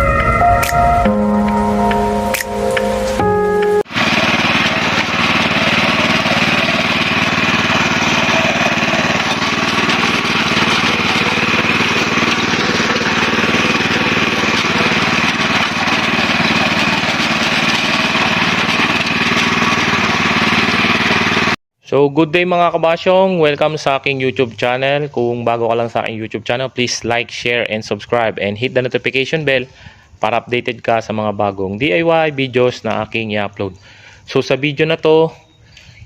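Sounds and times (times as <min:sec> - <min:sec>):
small gasoline engine running: 0:03.9 - 0:21.6.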